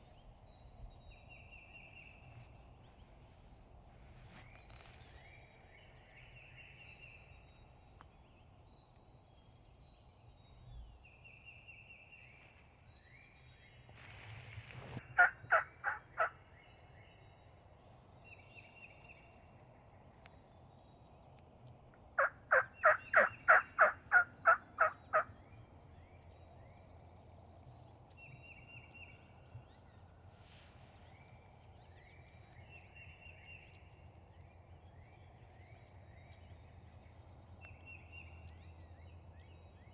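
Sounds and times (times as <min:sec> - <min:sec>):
small birds singing: 0:00.0 - 0:39.9
turkey calling: 0:15.1 - 0:16.3, 0:22.2 - 0:25.3.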